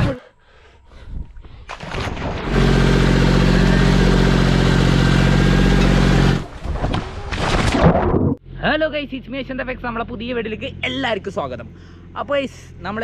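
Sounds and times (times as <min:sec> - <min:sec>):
tractor engine running: 0:02.2 - 0:06.6.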